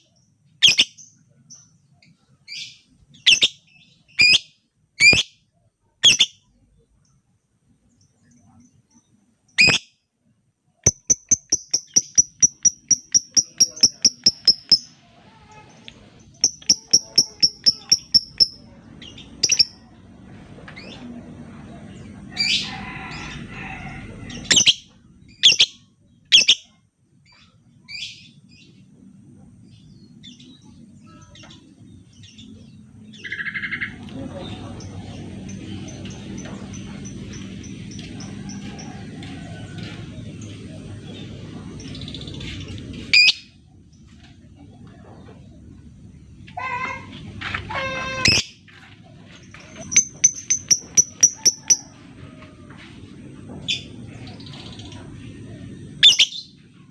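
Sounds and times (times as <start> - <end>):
bird ticking chirps: 10.8 - 14.9, 16.3 - 18.6, 19.4 - 19.8, 49.8 - 51.9.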